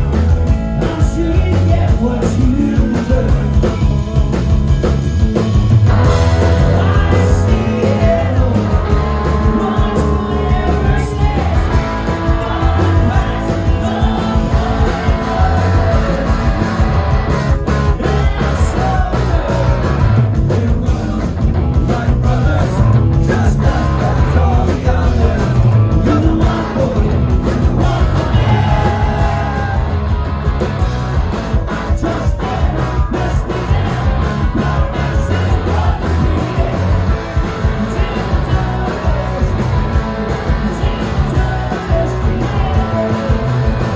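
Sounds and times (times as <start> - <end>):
driving drum beat: 0.0 - 43.9
live rock band playing: 0.0 - 43.9
person singing: 6.0 - 17.1, 17.9 - 30.0, 31.7 - 43.9.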